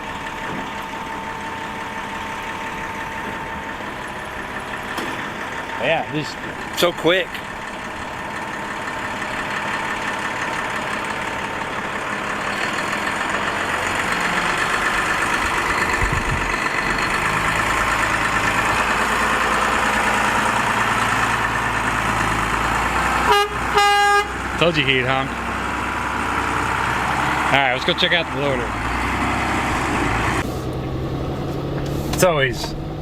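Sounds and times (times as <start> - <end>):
diesel truck engine running: 0.0 - 33.0
deep rumble: 11.2 - 23.7
horn honking: 20.7 - 25.8.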